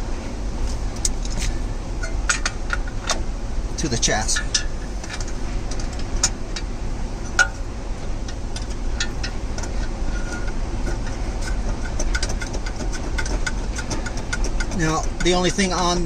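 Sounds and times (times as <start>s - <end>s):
steady low rumble: 0.0s - 16.0s
ratchet wrench clicking: 8.2s - 16.0s.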